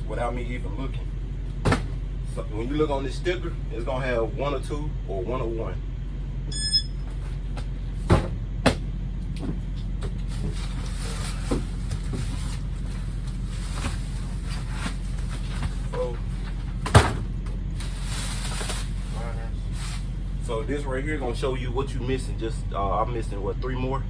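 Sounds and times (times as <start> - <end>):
steady low hum: 0.0 - 24.0
cardboard boxes set down: 1.6 - 2.0, 7.1 - 8.8, 9.4 - 19.0.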